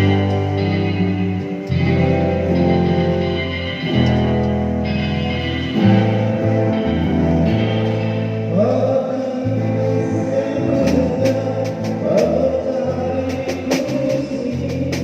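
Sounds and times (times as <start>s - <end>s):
music with singing: 0.0s - 15.0s.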